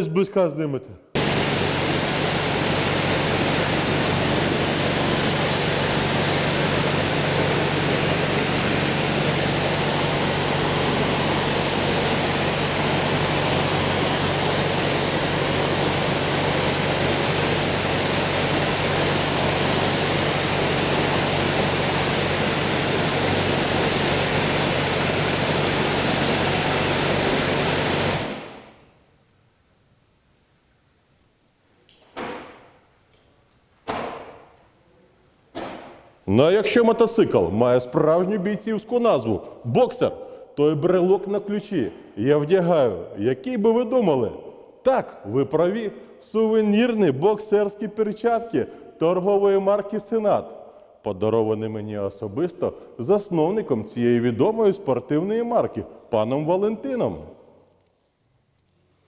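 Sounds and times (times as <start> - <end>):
pressure washer spraying water: 1.2 - 29.0
pump motor humming: 1.2 - 29.0.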